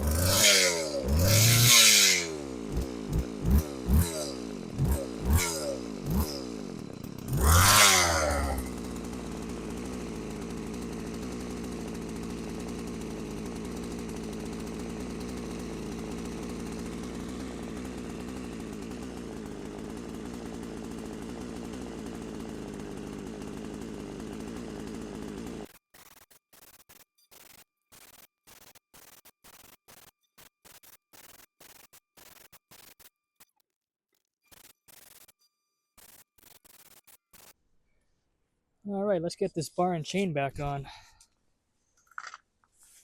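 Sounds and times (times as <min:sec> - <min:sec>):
chainsaw engine revving and idling: 0:00.0 - 0:26.8.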